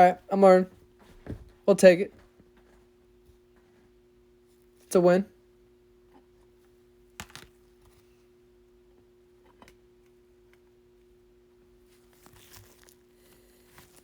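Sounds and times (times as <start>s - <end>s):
faint steady hum: 0.0s - 14.0s
packaging rustle: 12.0s - 14.0s.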